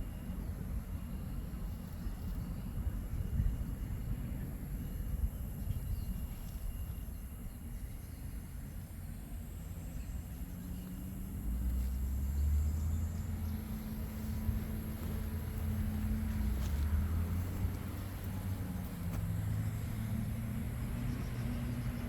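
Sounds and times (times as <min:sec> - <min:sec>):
vehicle engine rumbling: 0:08.8 - 0:22.0.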